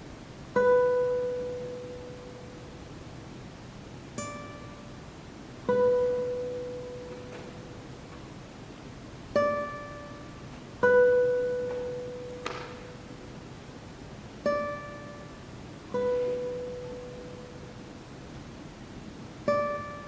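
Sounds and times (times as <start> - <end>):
classical guitar plucked notes: 0.5 - 2.8, 4.1 - 8.4, 9.3 - 13.5, 14.3 - 18.1, 19.4 - 20.0.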